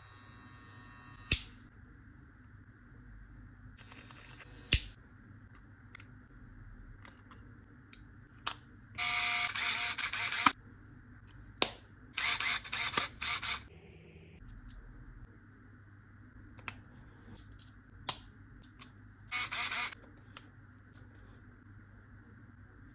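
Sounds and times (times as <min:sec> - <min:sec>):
hair clipper parts clicking: 0:01.2 - 0:01.6.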